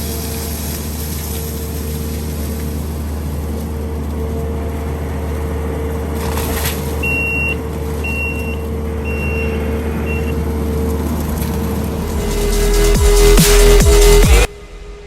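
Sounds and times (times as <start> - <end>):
skid steer engine running: 0.0 - 15.0
reversing alarm beeps: 7.0 - 10.4.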